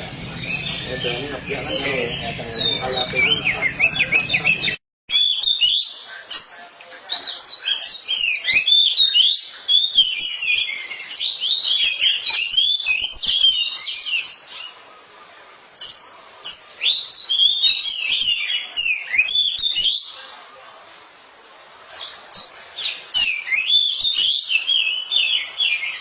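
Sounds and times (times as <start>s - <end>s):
bird singing whistles and chirps: 0.0s - 14.8s, 15.8s - 20.3s, 21.9s - 26.0s.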